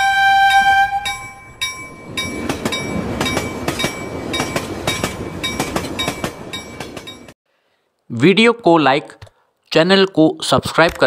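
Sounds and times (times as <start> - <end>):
passenger train passing: 0.0 - 7.4
bell-like chimes: 1.0 - 7.4
wheels clattering over rails: 1.1 - 7.4.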